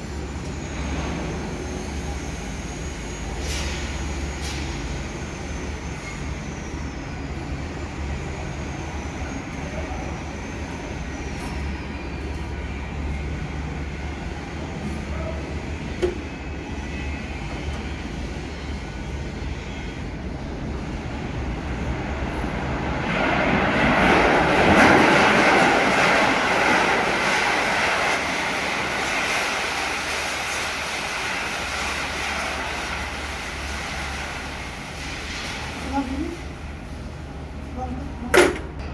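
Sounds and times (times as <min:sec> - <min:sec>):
mechanical rumble with hum: 0:30.0 - 0:38.9.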